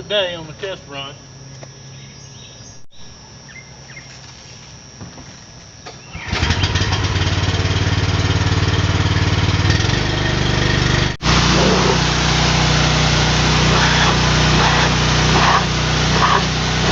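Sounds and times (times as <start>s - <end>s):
pressure washer engine running: 6.2s - 16.9s.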